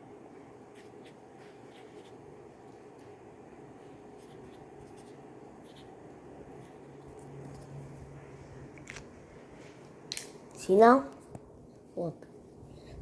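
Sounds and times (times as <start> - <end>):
marker scratching on paper: 0.7 - 7.7.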